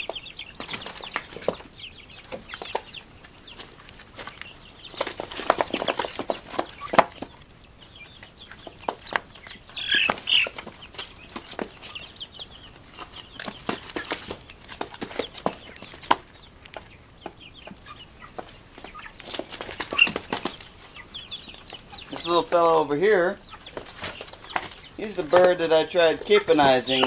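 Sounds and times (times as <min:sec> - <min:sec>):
beaks pecking taps and clicks: 0:00.0 - 0:03.6, 0:13.0 - 0:20.7
chickens clucking and peeping: 0:00.0 - 0:27.0.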